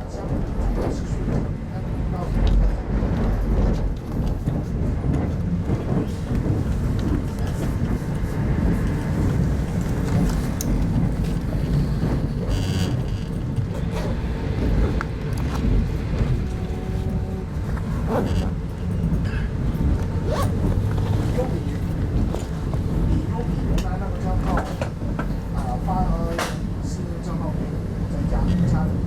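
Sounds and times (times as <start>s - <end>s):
train rumble inside coach: 0.0s - 29.0s.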